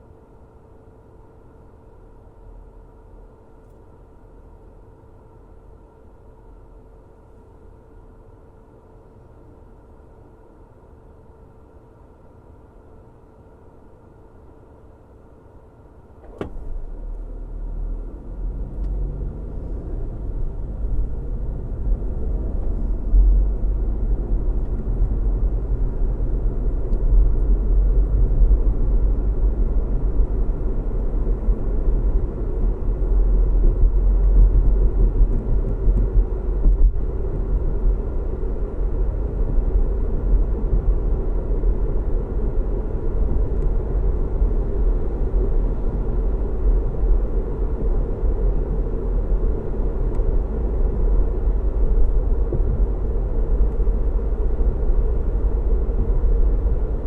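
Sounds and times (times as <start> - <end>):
car road rumble: 16.1 - 57.0.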